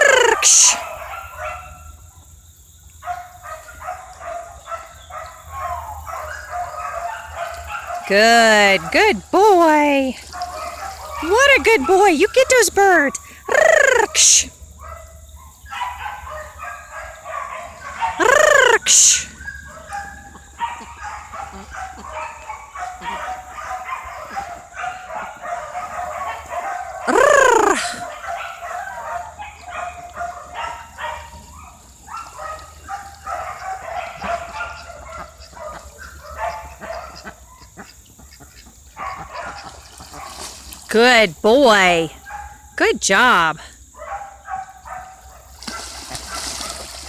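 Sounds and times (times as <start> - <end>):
poultry calling: 32.3 - 40.5.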